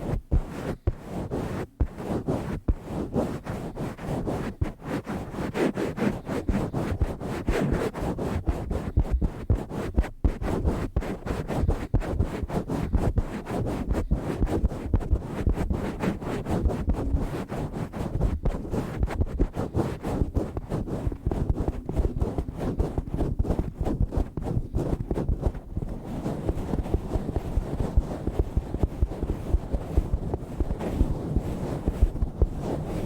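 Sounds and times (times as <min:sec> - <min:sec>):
hands rubbing microphone cover: 0:00.0 - 0:33.0.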